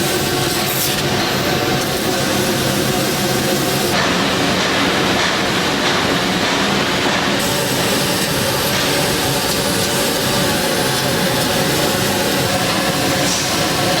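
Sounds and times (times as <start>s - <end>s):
factory machinery running: 0.0s - 14.0s.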